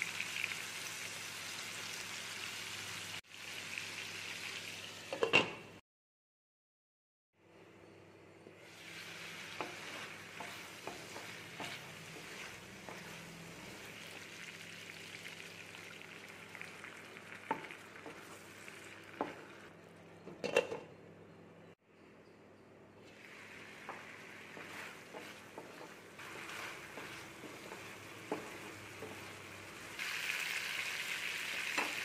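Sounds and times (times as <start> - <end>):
prawns sizzling in pan: 0.0 - 5.2, 8.6 - 19.7, 23.1 - 32.0.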